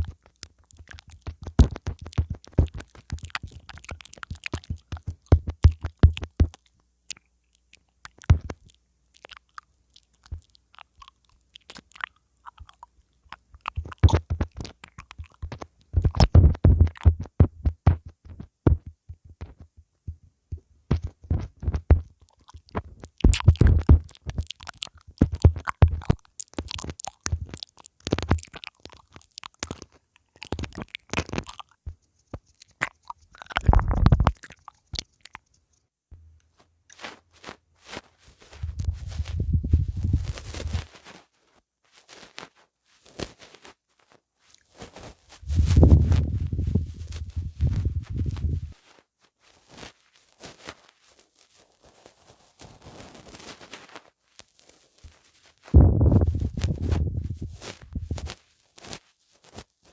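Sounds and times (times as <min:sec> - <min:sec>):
lips thumping on microphone: 0:00.0 - 0:06.6, 0:08.1 - 0:08.7, 0:13.6 - 0:28.7, 0:29.6 - 0:35.4, 0:38.6 - 0:40.8, 0:45.4 - 0:48.8, 0:55.7 - 0:58.4
wet mouth clicks and smacks: 0:00.0 - 0:19.7, 0:20.9 - 0:35.9.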